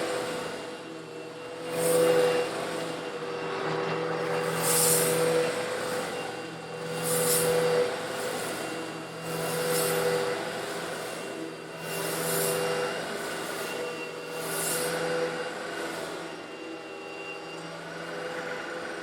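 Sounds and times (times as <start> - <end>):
vacuum cleaner motor hum: 0.0 - 19.0
grit rushing hiss: 4.4 - 5.9, 9.3 - 10.1.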